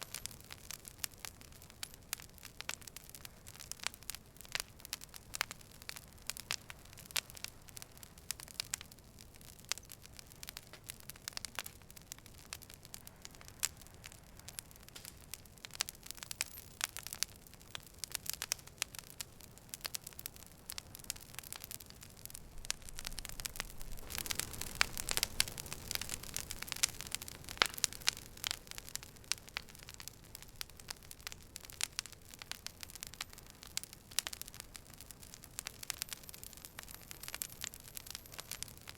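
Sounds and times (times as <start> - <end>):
campfire crackling and popping: 0.0 - 38.9
soft hiss: 0.0 - 38.9
low rush of flame: 9.6 - 38.9.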